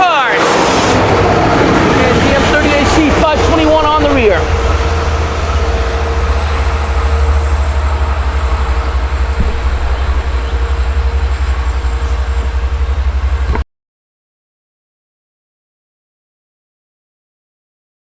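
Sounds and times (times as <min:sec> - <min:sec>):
constant tone: 0:00.0 - 0:13.6
diesel locomotive rumbling: 0:00.0 - 0:13.6.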